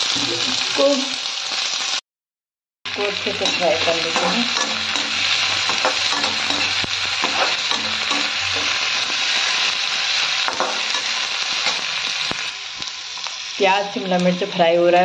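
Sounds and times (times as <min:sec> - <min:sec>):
vegetables sizzling in oil: 0:00.0 - 0:02.0, 0:02.9 - 0:15.0
spatula scraping a pan: 0:03.2 - 0:13.4.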